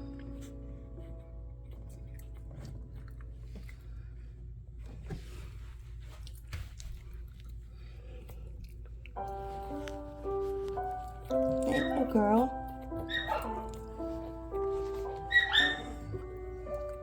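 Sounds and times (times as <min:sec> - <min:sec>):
puppies suckling: 0:00.0 - 0:04.6, 0:05.6 - 0:17.0
background music: 0:09.2 - 0:17.0.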